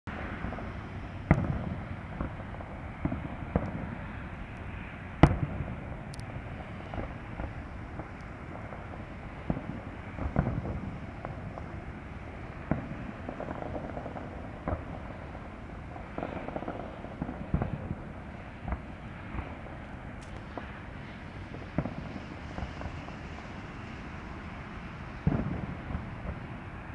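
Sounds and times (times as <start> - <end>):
fireworks bangs: 1.3 - 4.3, 5.2 - 20.8, 21.5 - 24.2, 25.2 - 26.6.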